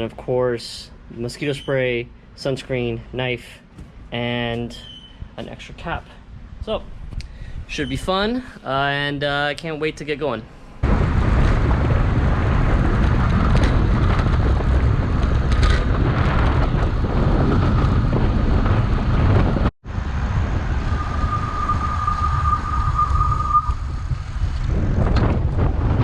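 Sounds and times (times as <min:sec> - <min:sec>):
wind buffeting microphone: 0:10.8 - 0:26.0
high steady tone: 0:20.1 - 0:24.4.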